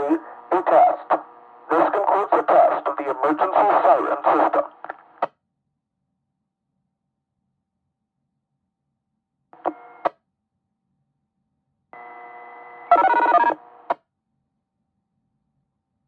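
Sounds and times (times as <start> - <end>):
radio transmission clicks: 0.0 - 5.3, 9.6 - 10.1
radio squelch click: 0.2 - 5.3, 9.6 - 10.1.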